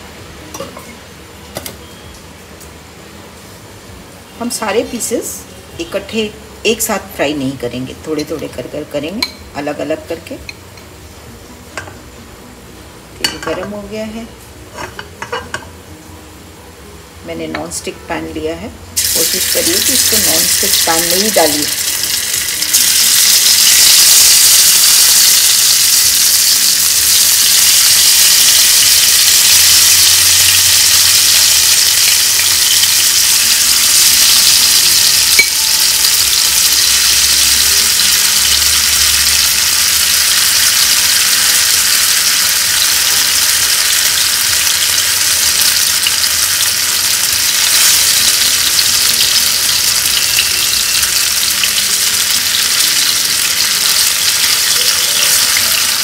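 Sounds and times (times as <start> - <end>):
frying hiss in hot oil: 17.3 - 56.0.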